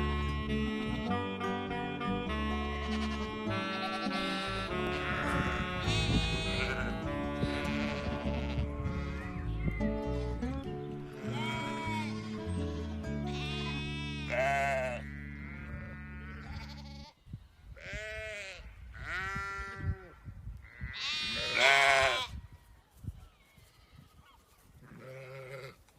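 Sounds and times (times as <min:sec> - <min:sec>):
background music with low tones: 0:00.0 - 0:16.5
sheep bleating: 0:02.7 - 0:09.6, 0:11.1 - 0:17.2, 0:17.8 - 0:22.4, 0:23.6 - 0:25.8.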